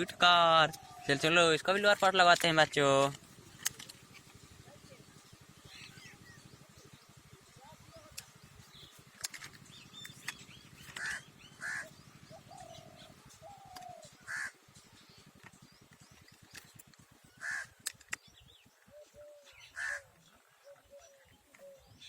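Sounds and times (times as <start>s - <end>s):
plastic toy parts clicking: 2.1s - 4.0s, 9.2s - 11.2s, 17.8s - 18.3s
bird giving harsh calls: 9.7s - 14.6s, 17.3s - 17.9s, 18.9s - 21.2s.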